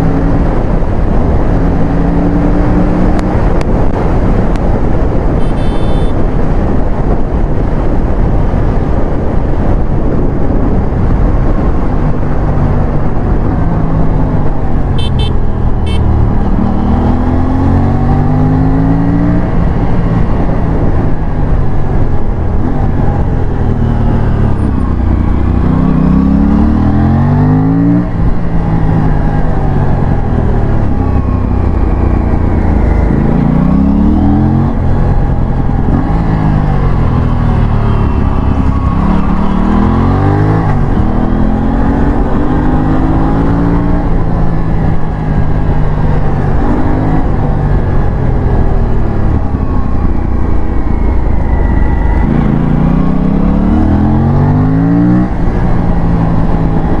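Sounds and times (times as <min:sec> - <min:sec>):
wind rush: 0:00.0 - 0:57.0
motorcycle engine revving: 0:23.8 - 0:57.0.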